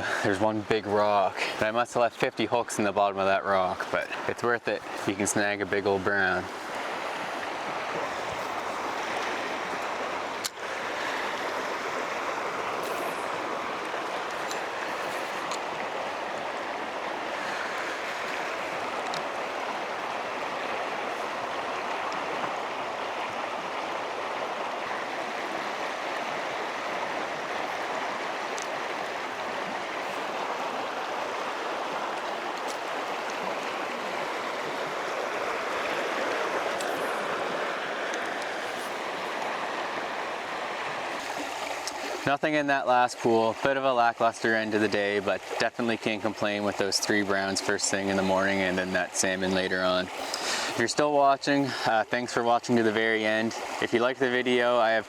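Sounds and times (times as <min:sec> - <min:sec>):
river current rushing: 0:00.0 - 0:55.0.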